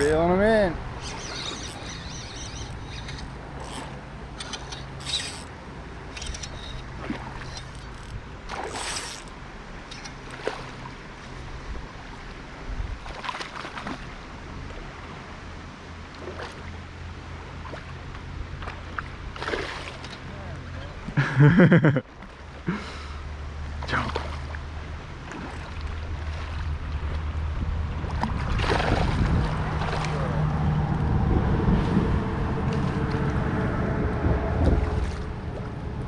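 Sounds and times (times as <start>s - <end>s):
river water sloshing and trickling: 0.0s - 21.2s, 22.0s - 36.0s
water splashes and knocks: 6.8s - 9.4s, 10.0s - 11.4s, 13.0s - 14.1s, 17.6s - 20.3s, 23.8s - 27.4s, 28.0s - 30.9s
low steady hum: 22.3s - 36.0s.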